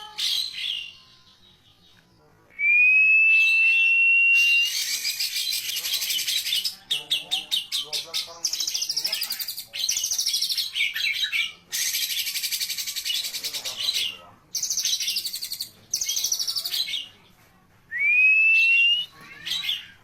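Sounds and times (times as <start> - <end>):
bird chattering and trilling: 4.5 - 17.2.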